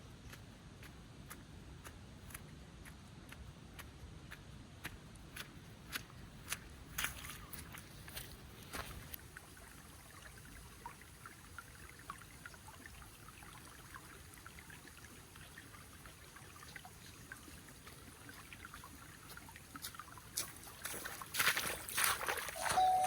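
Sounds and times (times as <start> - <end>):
small water drips ticking: 0.1 - 23.0
faint trickling water: 6.9 - 23.0.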